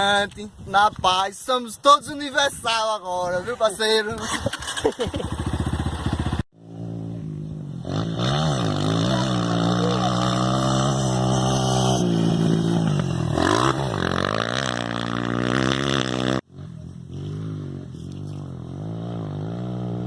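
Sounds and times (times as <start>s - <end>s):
dirt bike engine revving: 4.2s - 20.0s.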